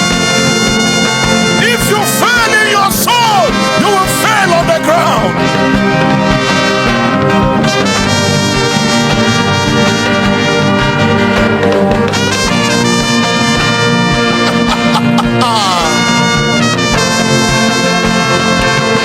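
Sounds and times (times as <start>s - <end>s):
long held chords: 0.0s - 19.0s
steady low beat: 5.2s - 19.0s.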